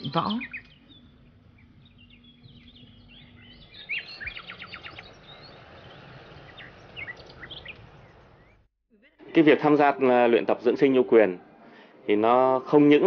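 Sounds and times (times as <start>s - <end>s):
birds chirping: 0.0s - 8.7s.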